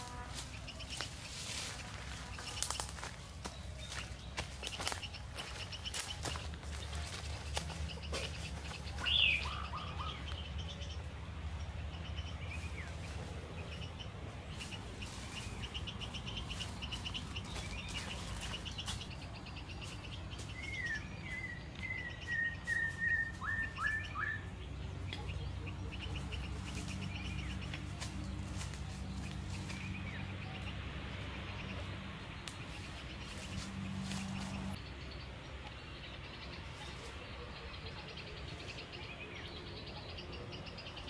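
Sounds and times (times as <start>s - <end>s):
slurred whistled bird notes: 20.7s - 24.5s.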